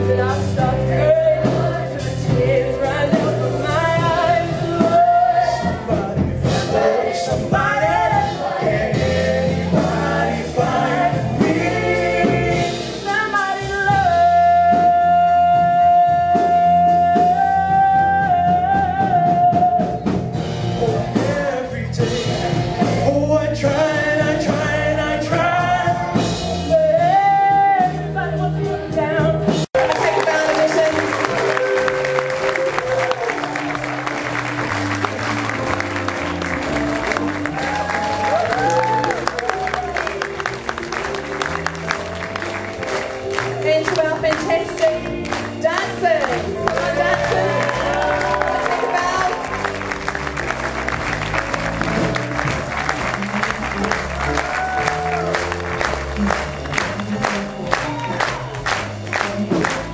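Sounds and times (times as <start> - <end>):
person singing: 0.0 - 34.2, 43.2 - 50.0
instrumental backing: 0.0 - 59.9.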